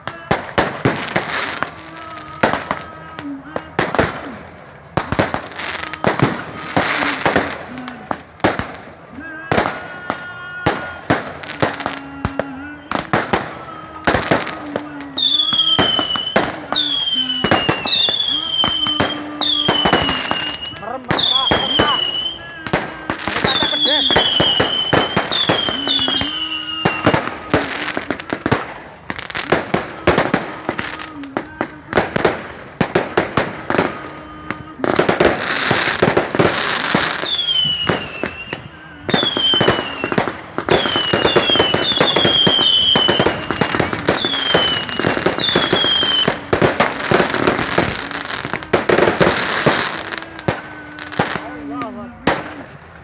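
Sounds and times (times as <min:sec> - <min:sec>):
fireworks crackling bangs: 0:00.0 - 0:53.0
falling firework whistles: 0:12.6 - 0:28.6, 0:34.3 - 0:51.4.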